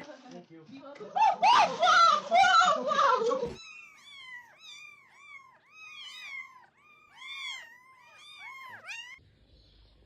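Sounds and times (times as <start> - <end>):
cat mewing: 3.5 - 9.2.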